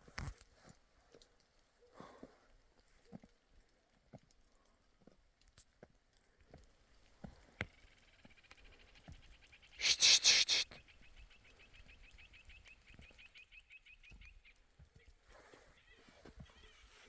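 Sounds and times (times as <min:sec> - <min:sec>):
harsh animal call burst: 0:09.8 - 0:10.8
animal chirping: 0:09.8 - 0:11.1.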